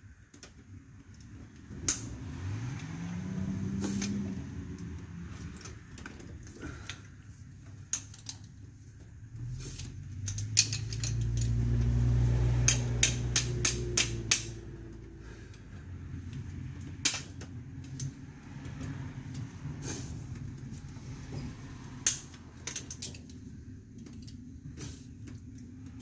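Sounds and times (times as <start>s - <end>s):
tools clicking on metal brake parts: 7.7s - 8.6s, 9.6s - 11.9s, 12.6s - 15.6s, 16.2s - 18.2s, 22.0s - 26.0s.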